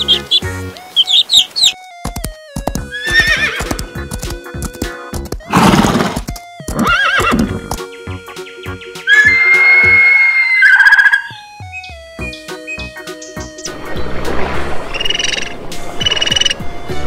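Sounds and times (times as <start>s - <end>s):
background music: 0.0s - 17.0s
horse whinnying: 2.9s - 3.7s, 5.5s - 7.6s, 9.1s - 11.3s
horse snorting: 5.5s - 6.2s.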